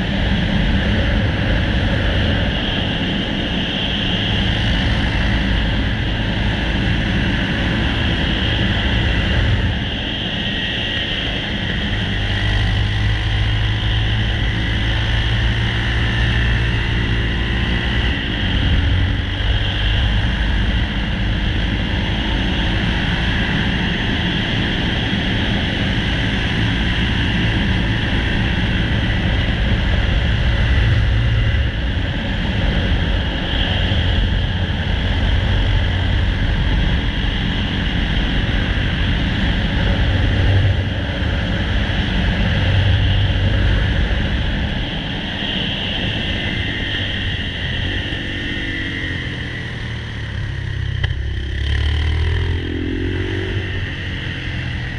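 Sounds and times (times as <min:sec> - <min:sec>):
wind rumble on microphone: 0:00.0 - 0:54.9
motorcycle engine running: 0:47.0 - 0:54.9.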